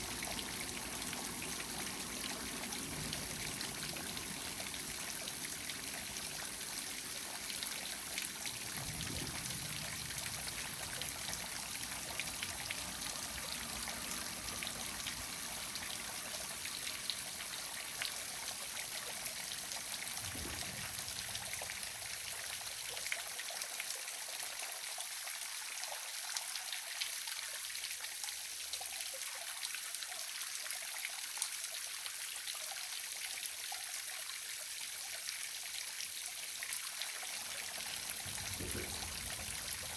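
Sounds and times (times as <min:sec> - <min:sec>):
waterfall splashing: 0:37.8 - 0:39.9.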